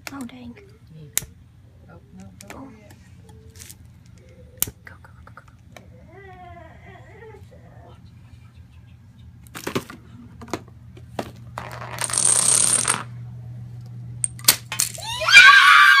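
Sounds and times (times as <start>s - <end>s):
high excited voice crying out: 15.0s - 16.0s.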